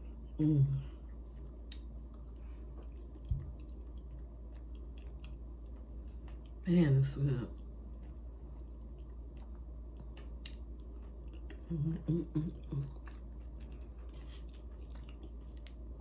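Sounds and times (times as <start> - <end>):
crunchy chewing: 1.3 - 6.6, 7.5 - 11.7, 12.7 - 16.0
person humming: 11.7 - 12.9.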